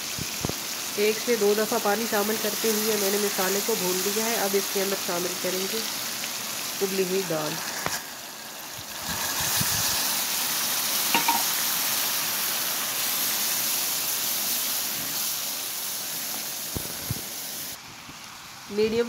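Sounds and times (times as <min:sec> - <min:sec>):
lentils sizzling in hot oil: 0:00.0 - 0:19.0
spatula knocking against pan: 0:11.1 - 0:11.5.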